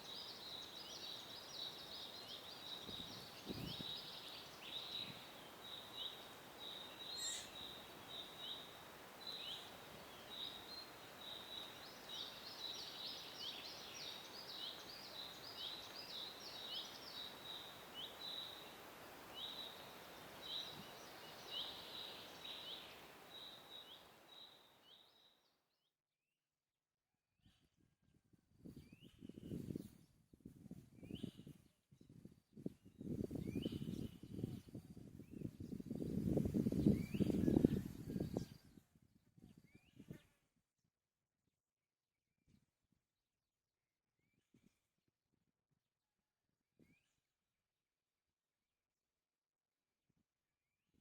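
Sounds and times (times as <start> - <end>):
small birds chirping: 0.0 - 25.5, 31.0 - 38.8.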